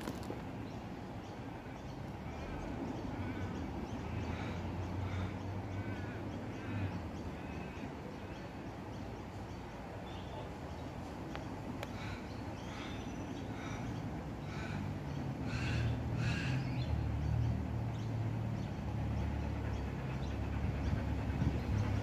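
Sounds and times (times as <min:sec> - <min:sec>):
bird calling: 0:11.8 - 0:17.0
steady low rumble: 0:17.6 - 0:22.0.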